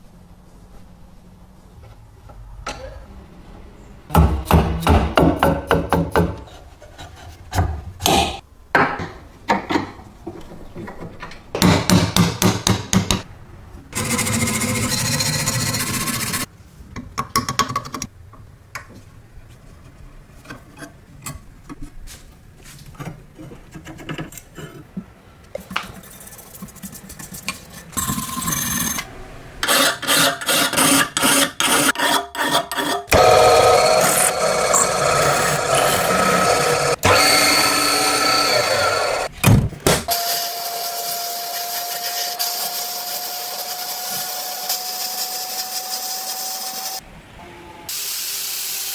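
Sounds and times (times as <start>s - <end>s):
knocks and handling: 5.0s - 13.3s.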